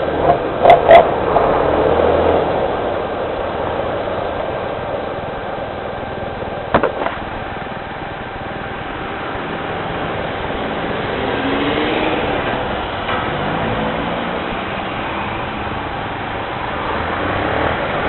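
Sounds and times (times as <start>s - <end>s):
steady downpour of rain: 0.0s - 18.0s
sharp knocks: 6.7s - 7.2s.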